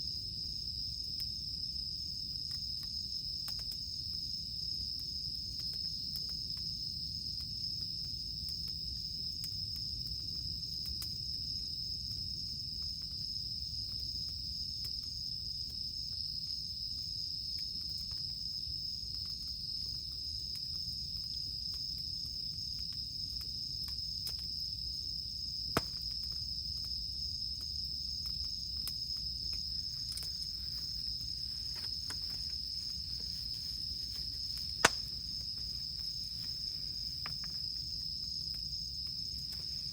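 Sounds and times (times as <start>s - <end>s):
cicadas droning: 0.0s - 39.9s
campfire crackling: 0.1s - 39.9s
fire popping: 17.8s - 39.9s.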